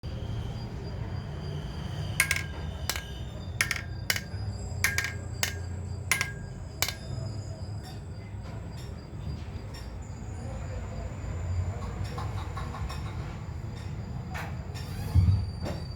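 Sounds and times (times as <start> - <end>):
metal-on-metal clinks: 2.2 - 7.1.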